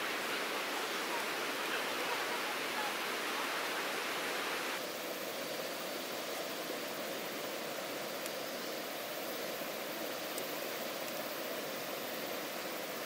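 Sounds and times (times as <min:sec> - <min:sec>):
river rapids rushing over rocks: 0:00.0 - 0:04.8.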